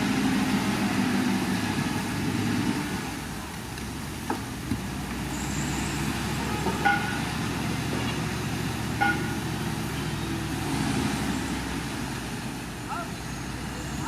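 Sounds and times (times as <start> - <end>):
heavy diesel machinery running: 0.0 - 3.5, 4.2 - 14.0.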